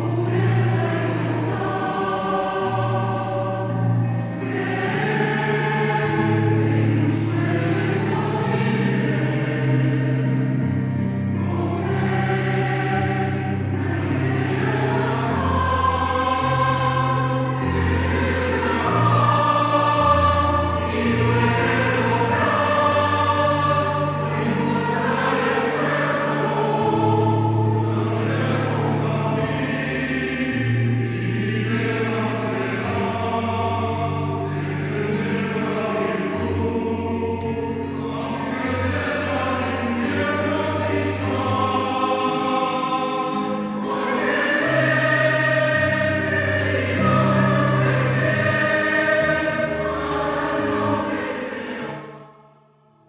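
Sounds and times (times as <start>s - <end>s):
choir singing: 0.0s - 53.0s.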